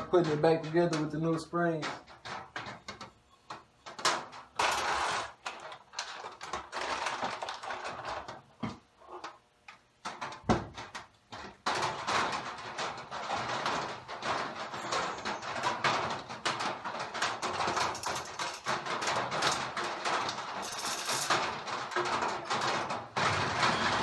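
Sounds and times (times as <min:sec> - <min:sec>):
metal parts clicking and clinking: 0:00.0 - 0:08.4, 0:11.4 - 0:23.3.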